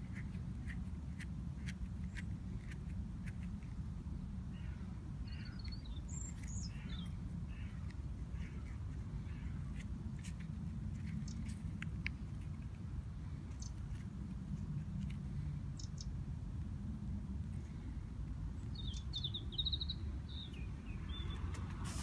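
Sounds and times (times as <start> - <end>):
steady low rumble: 0.0 - 22.0
bird chirping: 4.5 - 11.6, 13.5 - 14.0, 15.7 - 16.2, 18.6 - 21.7.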